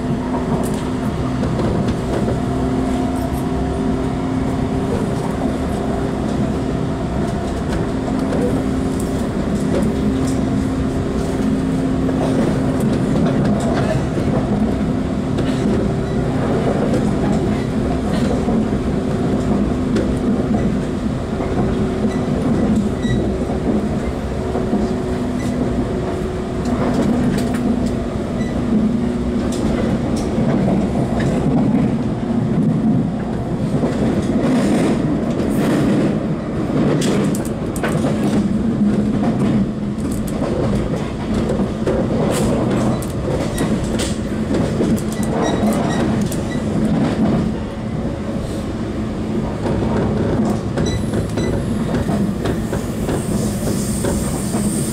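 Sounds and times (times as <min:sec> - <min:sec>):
train rolling rumble: 0:00.0 - 0:54.9
wheels clicking over rail joints: 0:11.4 - 0:47.6.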